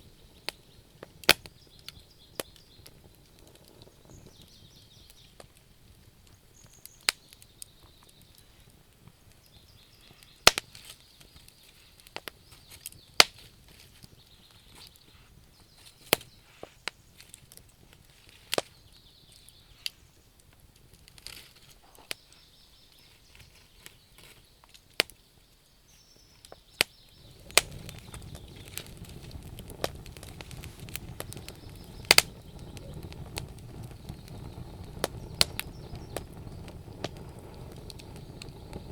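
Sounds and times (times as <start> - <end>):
wood fire crackling and popping: 0.0 - 38.9
faint high chirping: 21.9 - 38.9.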